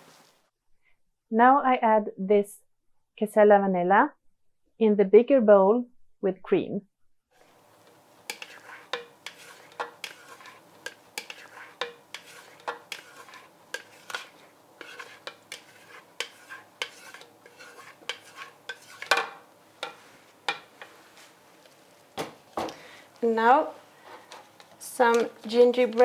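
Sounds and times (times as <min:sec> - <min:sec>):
utensil stirring in mixing bowl: 0:07.5 - 0:26.0.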